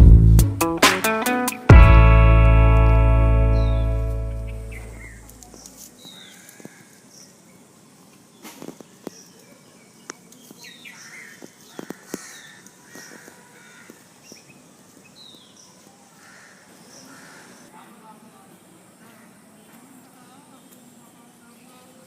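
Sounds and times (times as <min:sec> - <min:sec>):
birds chirping: 0:03.0 - 0:17.7.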